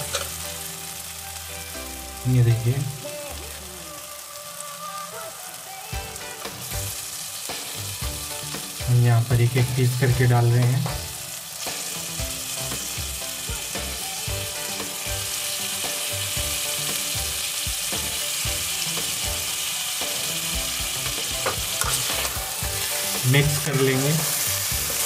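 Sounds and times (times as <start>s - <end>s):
food sizzling in a pan: 0.0s - 25.0s
spatula stirring: 17.0s - 25.0s
vegetables dropping into pan: 21.0s - 22.5s.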